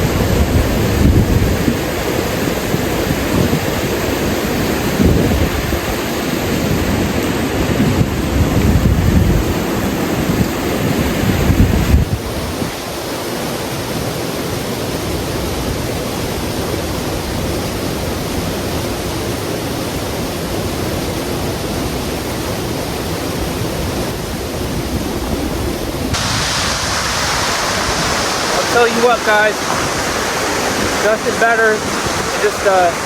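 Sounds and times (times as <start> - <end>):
wind buffeting microphone: 0.0 - 13.0, 20.9 - 33.0
waterfall rushing: 0.0 - 33.0.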